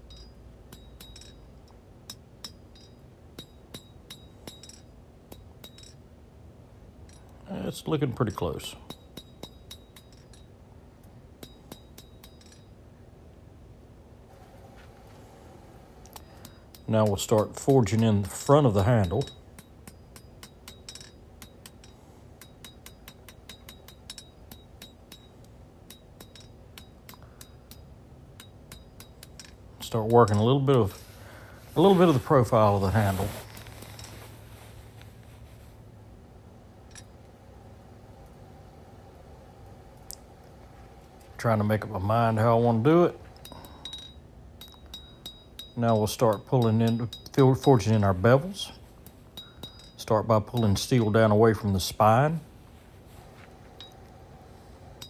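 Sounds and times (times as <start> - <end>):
hammer striking steel on anvil: 0.1 - 1.5, 2.1 - 6.0, 8.7 - 10.5, 11.4 - 12.7, 41.5 - 48.8, 49.4 - 51.1.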